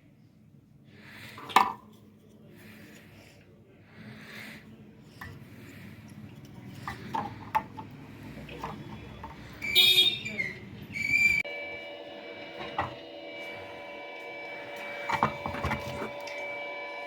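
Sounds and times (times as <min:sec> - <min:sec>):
electrical whine: 0:10.8 - 0:17.0.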